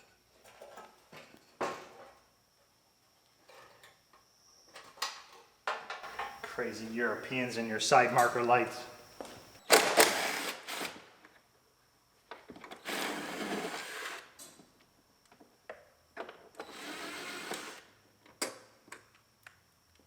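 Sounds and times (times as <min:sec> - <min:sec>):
power tool running: 0:12.8 - 0:14.3.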